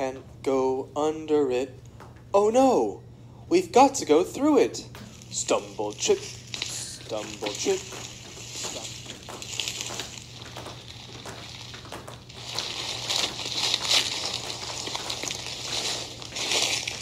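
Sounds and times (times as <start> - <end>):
steady low hum: 0.0 - 17.0
sneakers stamping on tiled floor: 4.9 - 17.0.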